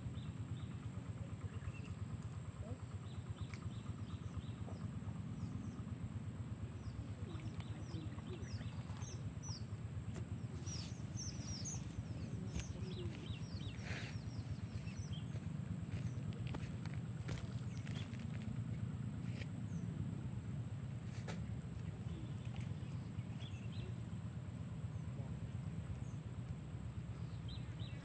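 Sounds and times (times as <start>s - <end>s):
small birds chirping: 0.0s - 20.0s, 21.2s - 28.0s
steady low outdoor rumble: 0.0s - 28.0s.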